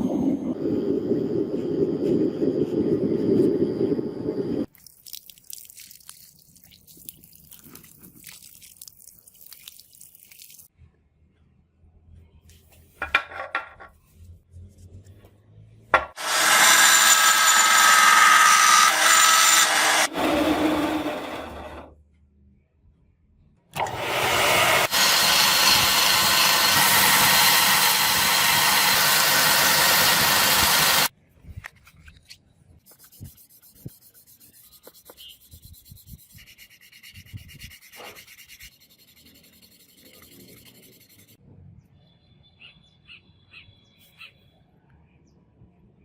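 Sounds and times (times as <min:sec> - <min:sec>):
power sander running: 0:16.2 - 0:21.9, 0:23.8 - 0:31.1.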